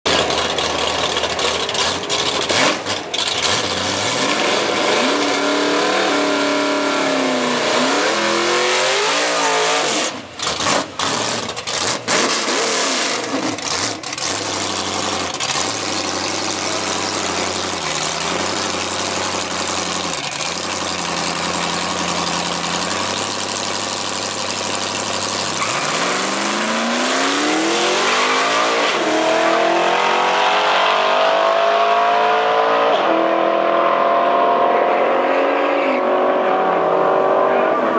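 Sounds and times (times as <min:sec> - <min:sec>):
car engine revving: 0:00.1 - 0:37.9.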